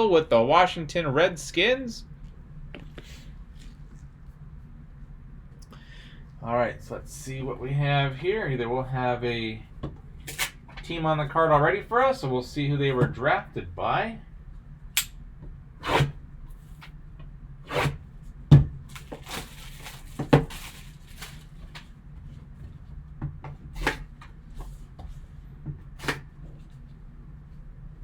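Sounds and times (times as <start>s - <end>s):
handling cardboard and plastic packaging: 18.8s - 22.6s
packaging rustling: 18.9s - 22.0s.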